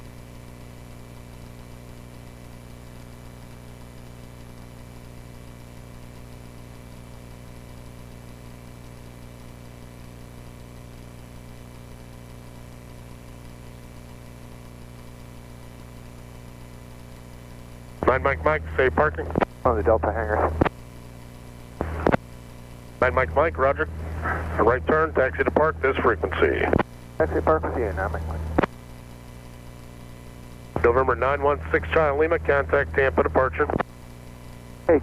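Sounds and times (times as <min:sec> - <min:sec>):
radio: 0:18.0 - 0:20.8, 0:21.7 - 0:22.3, 0:23.0 - 0:28.8, 0:30.7 - 0:33.9, 0:34.6 - 0:35.0
aircraft piston engine humming: 0:23.0 - 0:28.7, 0:30.8 - 0:33.8.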